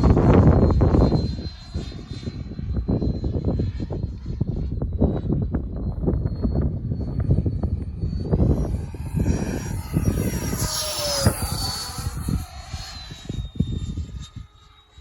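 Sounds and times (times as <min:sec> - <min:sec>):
model jet fan whine: 0:00.0 - 0:15.0
wind rumbling on microphone: 0:00.0 - 0:15.0.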